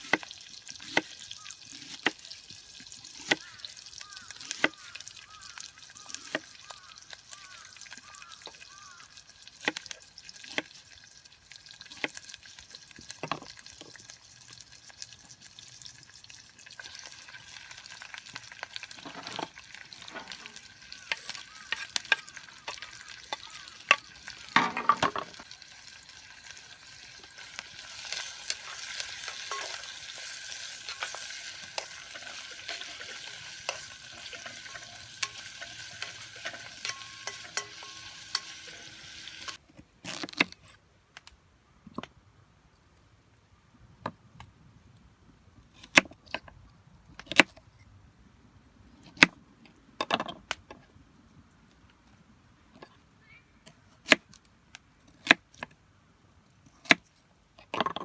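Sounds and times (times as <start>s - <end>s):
campfire crackling and popping: 0.0s - 39.6s
sizzling hiss: 16.8s - 39.6s.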